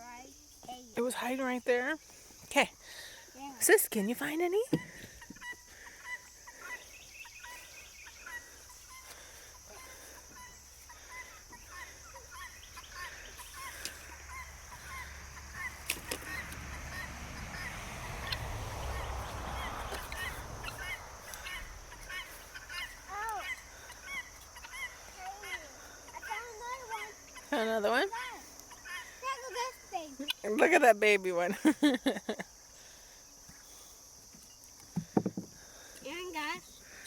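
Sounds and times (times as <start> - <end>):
poultry flock calling: 4.6 - 30.6.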